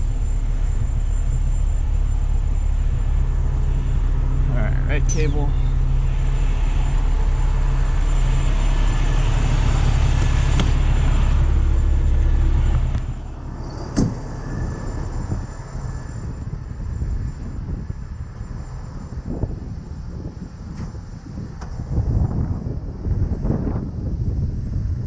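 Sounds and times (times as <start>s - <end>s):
diesel engine running: 0.0s - 24.8s.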